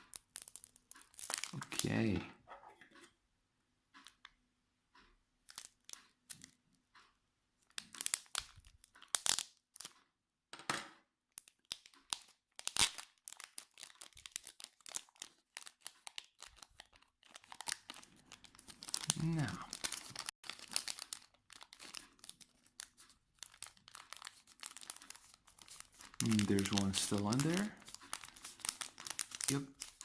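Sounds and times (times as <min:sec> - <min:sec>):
foil wrapper tearing and crinkling: 0:00.0 - 0:01.8, 0:07.8 - 0:09.9, 0:11.4 - 0:30.0.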